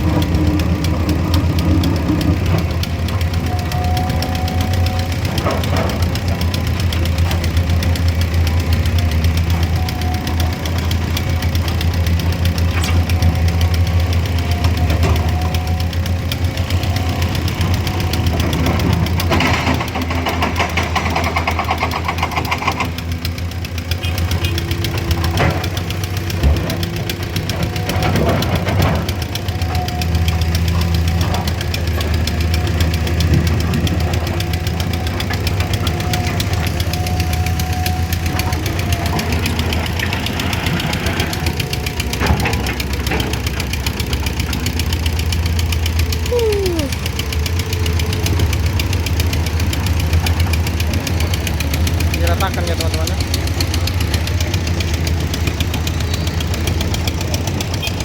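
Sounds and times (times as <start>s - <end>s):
heavy machinery engine running: 0.0s - 58.0s.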